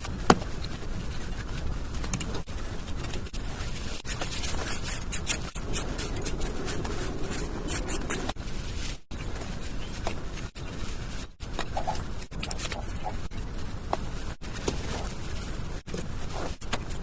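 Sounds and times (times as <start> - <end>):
scraping on rough surface: 3.5 - 9.6.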